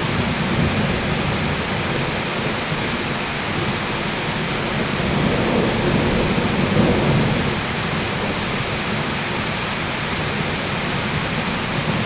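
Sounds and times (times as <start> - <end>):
heavy rain hissing: 0.0 - 12.0
thunder rumble: 3.6 - 9.0.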